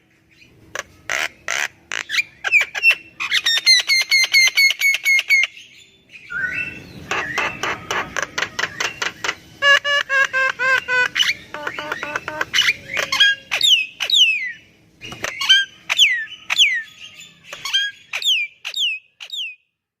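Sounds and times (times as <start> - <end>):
sharp whistled bird notes: 5.6 - 7.7
myna singing chattering notes: 8.4 - 14.0.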